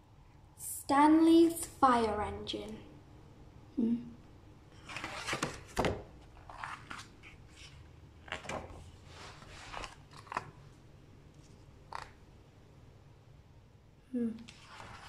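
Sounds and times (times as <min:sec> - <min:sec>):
book pages rustling: 0:04.8 - 0:12.2, 0:14.4 - 0:15.0.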